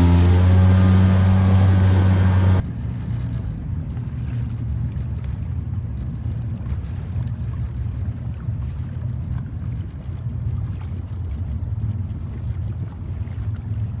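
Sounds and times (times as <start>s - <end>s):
motorboat engine drone: 0.0s - 2.6s
low rumble of boat on water: 0.0s - 14.0s.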